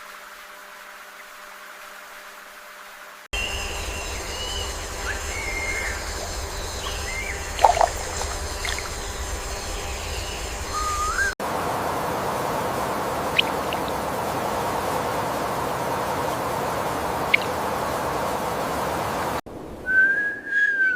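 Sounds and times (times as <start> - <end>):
steady hiss: 0.0 - 19.9
outdoor ambience: 0.0 - 20.9
wild birds calling: 3.4 - 19.4.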